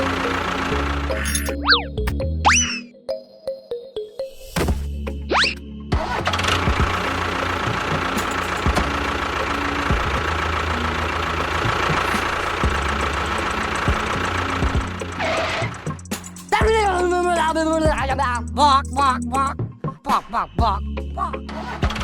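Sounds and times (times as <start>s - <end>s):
engine running steadily: 0.0s - 2.1s, 6.0s - 18.6s.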